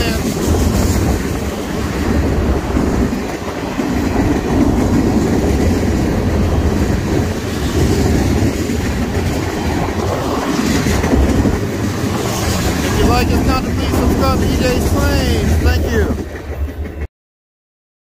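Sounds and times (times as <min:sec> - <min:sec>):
freight train rolling past: 0:00.0 - 0:17.1
steel wheels clacking over rail joints: 0:00.0 - 0:17.1.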